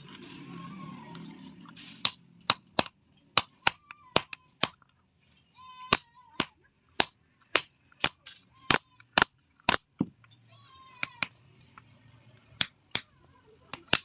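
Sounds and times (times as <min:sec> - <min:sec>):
hammer striking steel on anvil: 0:02.0 - 0:04.8, 0:13.7 - 0:14.0.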